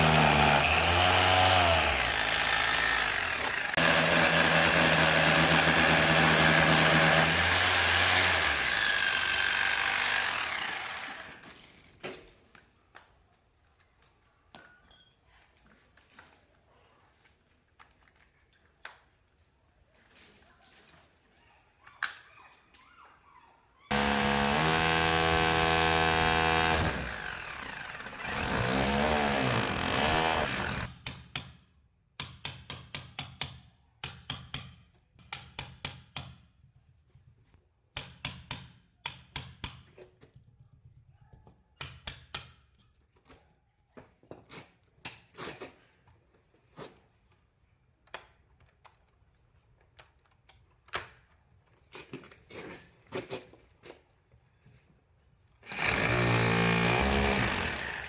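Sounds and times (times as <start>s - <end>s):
electric drill running: 0.0s - 11.5s, 23.9s - 30.9s, 55.7s - 58.0s.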